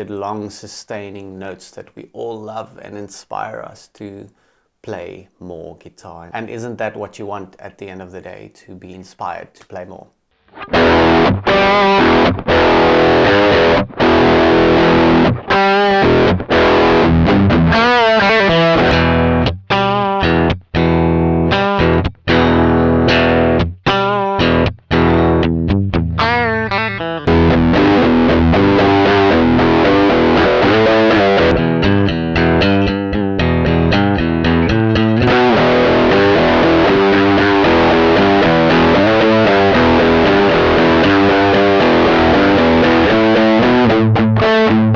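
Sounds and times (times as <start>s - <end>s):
distorted electric guitar: 10.4s - 44.9s.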